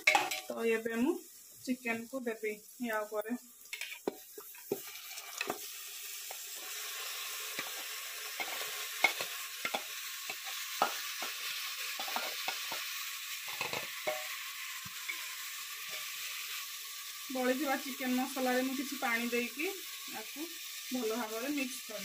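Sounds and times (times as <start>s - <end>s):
spoon scraping and knocking pot: 0.0s - 0.5s, 12.0s - 12.9s, 13.5s - 14.4s
chicken sizzling in hot oil: 0.0s - 22.0s.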